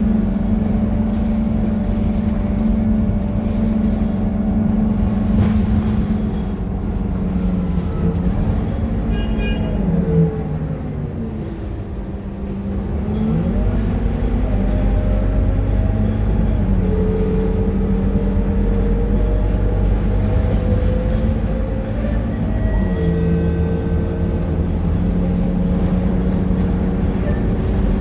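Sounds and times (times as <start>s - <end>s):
bus engine running: 0.0s - 28.0s.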